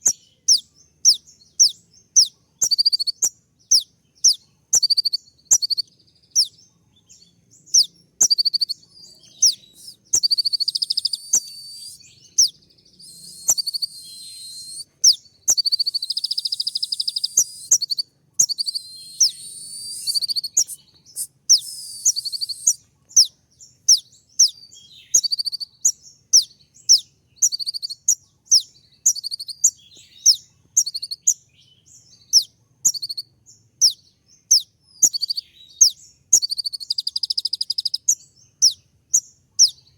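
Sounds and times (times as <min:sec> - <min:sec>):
buzzy bird trills: 0:07.7 - 0:23.3
bird calling high sharp notes: 0:09.2 - 0:22.8.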